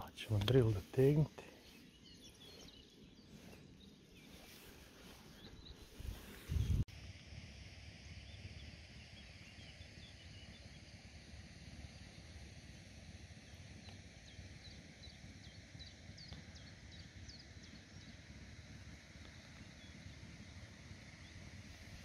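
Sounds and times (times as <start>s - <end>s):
small bird chirping: 0.3s - 6.8s.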